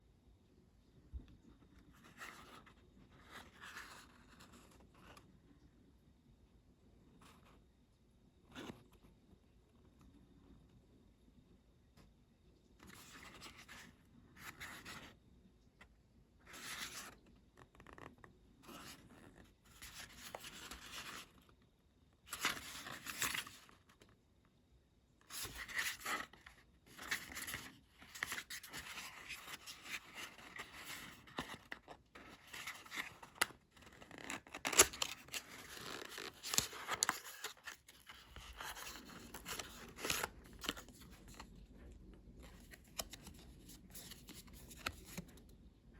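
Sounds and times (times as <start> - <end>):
packaging rustling and scraping: 25.3 - 41.5.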